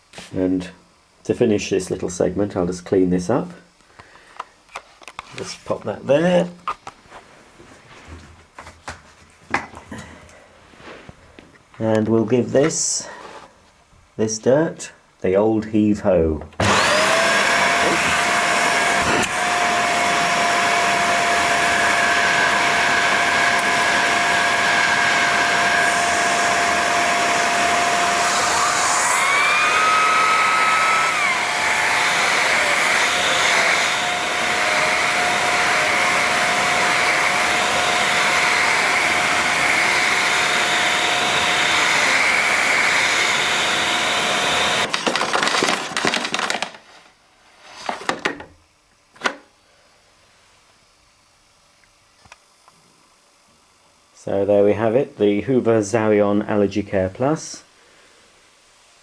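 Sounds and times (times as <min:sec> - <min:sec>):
vacuum cleaner running: 0:16.6 - 0:47.0.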